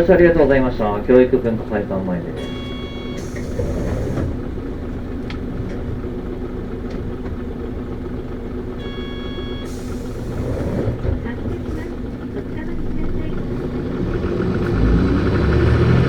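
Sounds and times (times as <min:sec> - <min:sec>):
diesel bus engine idling: 0:00.0 - 0:16.0
air hiss: 0:03.2 - 0:04.4.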